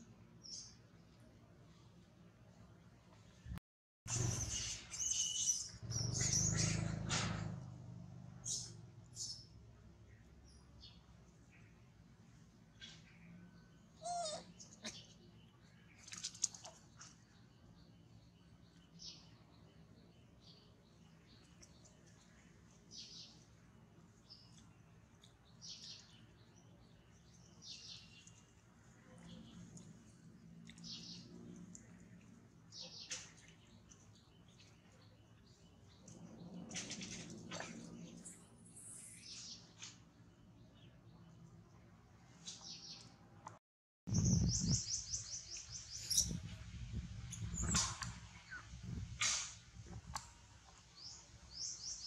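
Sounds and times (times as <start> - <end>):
baby monkey chirping and squealing: 14.0 - 14.5.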